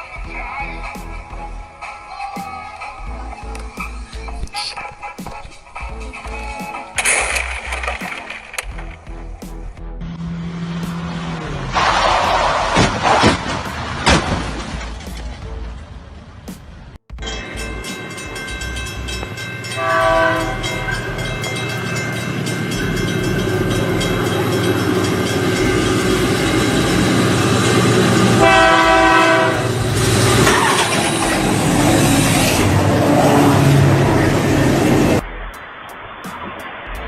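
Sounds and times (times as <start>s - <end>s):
passing train rumbling and clacking: 3.0s - 37.0s
train horn chord blasts: 17.2s - 30.4s.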